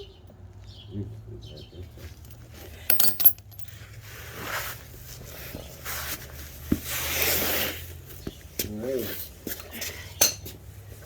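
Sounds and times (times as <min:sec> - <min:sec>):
bolts and nuts clinking: 0:02.0 - 0:04.0.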